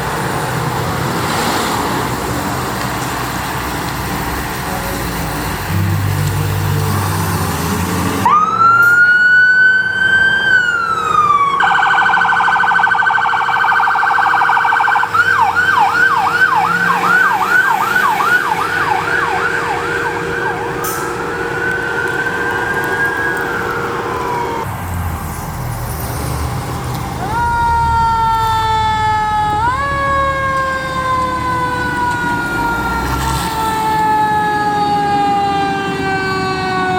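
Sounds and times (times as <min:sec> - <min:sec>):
emergency vehicle siren: 0:00.0 - 0:36.9
road traffic noise: 0:00.0 - 0:36.9.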